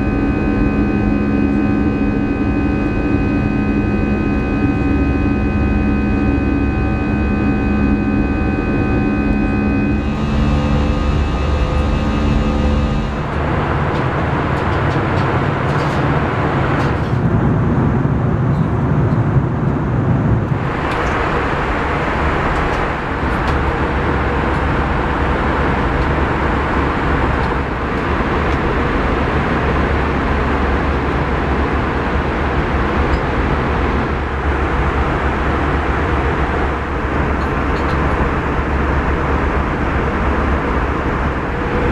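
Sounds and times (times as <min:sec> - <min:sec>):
steady tones: 0:00.0 - 0:17.3
jet engine roar in cabin: 0:00.0 - 0:41.9.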